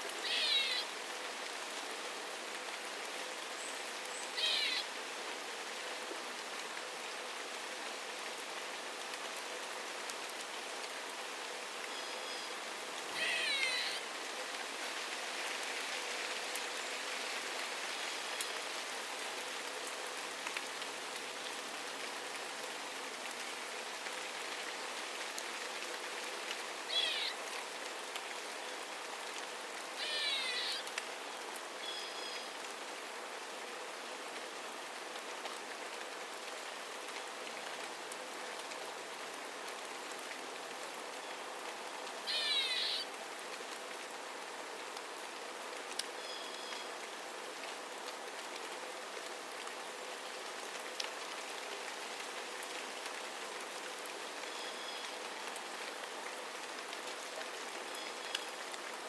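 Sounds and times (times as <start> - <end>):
steady rain falling: 0.0 - 59.0
bird calling: 0.2 - 0.9, 4.4 - 4.9, 13.2 - 14.0, 26.9 - 27.4, 30.0 - 30.8, 42.3 - 43.0.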